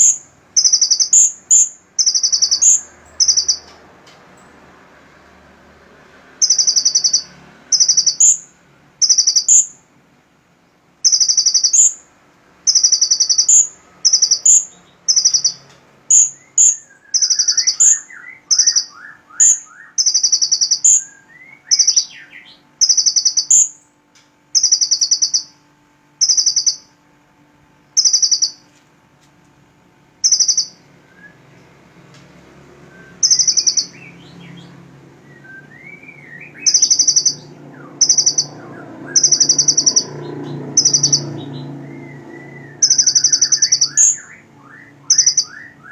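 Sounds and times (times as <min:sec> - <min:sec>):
bird high buzzy call: 0:00.0 - 0:03.7, 0:06.4 - 0:09.8, 0:11.0 - 0:12.1, 0:12.7 - 0:23.8, 0:24.6 - 0:25.6, 0:26.2 - 0:27.0, 0:28.0 - 0:28.6, 0:30.2 - 0:31.3, 0:32.8 - 0:45.9
quick rising chirps: 0:32.5 - 0:44.5.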